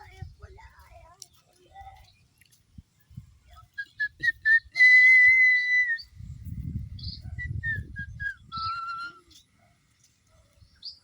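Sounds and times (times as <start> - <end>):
person whistling: 3.9 - 6.0.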